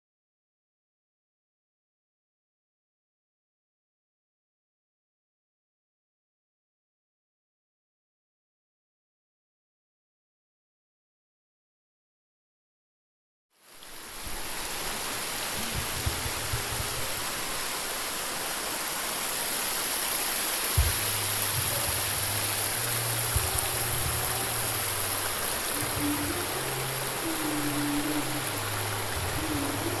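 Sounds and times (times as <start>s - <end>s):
stream water flowing: 13.6s - 30.0s
background music low notes: 20.2s - 30.0s.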